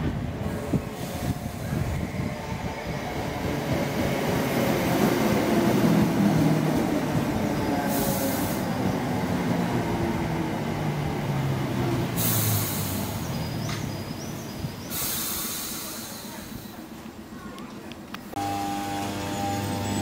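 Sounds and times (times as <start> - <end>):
electric train rumble and hum: 0.0 - 17.3, 18.0 - 20.0
short air hisses: 12.2 - 13.2, 14.8 - 16.8.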